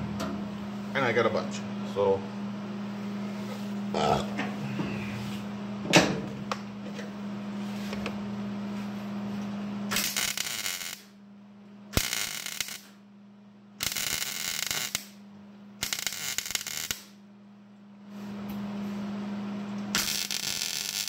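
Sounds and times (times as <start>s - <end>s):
steady low hum: 0.0s - 21.0s
welder crackling: 9.9s - 11.1s, 12.0s - 13.0s, 13.8s - 15.2s, 15.8s - 17.2s, 19.9s - 21.0s.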